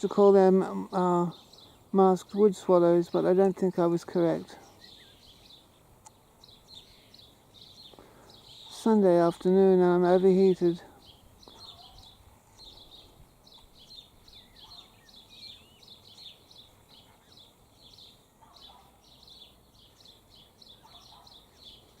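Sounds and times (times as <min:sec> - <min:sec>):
lower bird calls: 0:04.5 - 0:08.9, 0:10.2 - 0:22.0
high bird chirps: 0:10.5 - 0:22.0.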